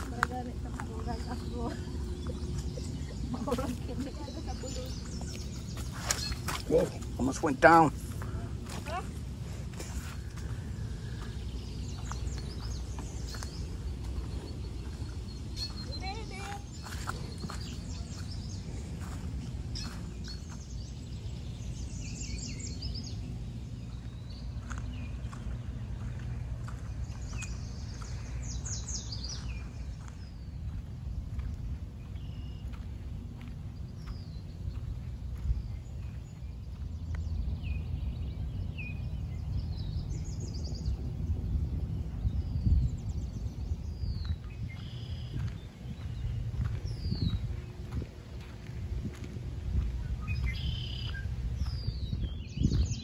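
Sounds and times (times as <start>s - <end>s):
wild birds chirping and calling: 0.0s - 24.8s
low background rumble: 0.0s - 53.0s
songbirds calling: 0.0s - 53.0s.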